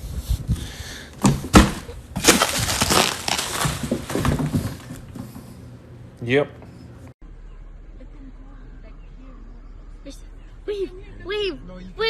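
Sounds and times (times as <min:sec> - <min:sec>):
thumps on cardboard box: 0:01.2 - 0:02.8, 0:03.5 - 0:05.4
cardboard crinkling and scraping: 0:01.2 - 0:05.4.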